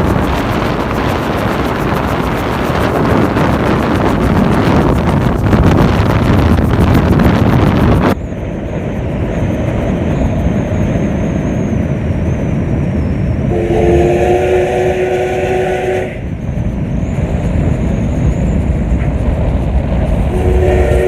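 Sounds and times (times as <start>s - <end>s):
low rumble: 0.0s - 21.0s
thin high whine: 0.0s - 21.0s
train whistle chord: 13.5s - 16.3s, 20.3s - 21.0s.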